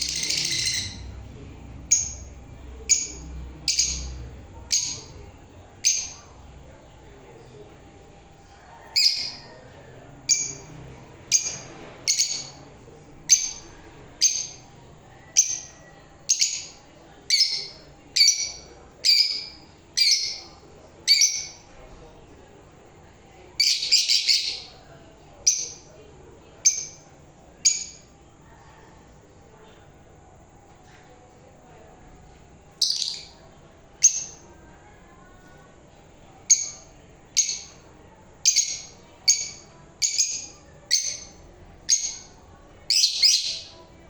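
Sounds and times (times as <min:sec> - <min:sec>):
lovebird chirping: 0:00.0 - 0:01.1, 0:01.9 - 0:02.3, 0:02.9 - 0:05.2, 0:05.8 - 0:06.2, 0:09.0 - 0:09.4, 0:10.3 - 0:10.7, 0:11.3 - 0:12.6, 0:13.3 - 0:14.7, 0:15.3 - 0:20.5, 0:21.1 - 0:21.6, 0:23.6 - 0:24.8, 0:25.5 - 0:25.9, 0:26.7 - 0:27.0, 0:27.7 - 0:28.0, 0:32.8 - 0:33.4, 0:34.0 - 0:34.4, 0:36.5 - 0:37.8, 0:38.4 - 0:43.8.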